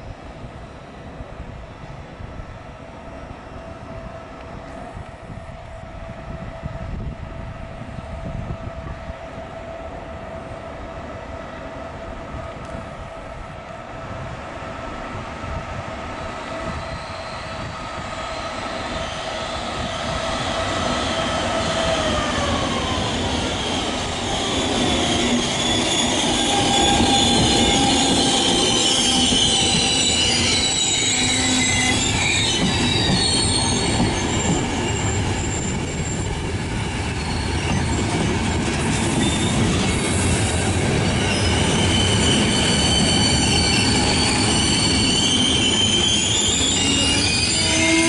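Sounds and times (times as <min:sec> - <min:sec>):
train rumble: 0:00.0 - 0:48.0
high-pitched wheel squeal: 0:16.5 - 0:38.2, 0:39.0 - 0:48.0.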